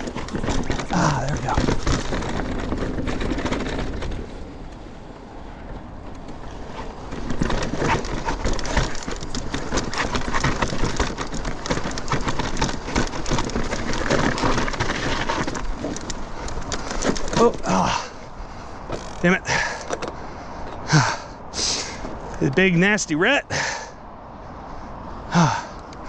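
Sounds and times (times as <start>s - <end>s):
tyres crunching over dirt and rock: 0.0s - 4.8s, 5.7s - 20.2s
bike rattling: 0.0s - 26.0s.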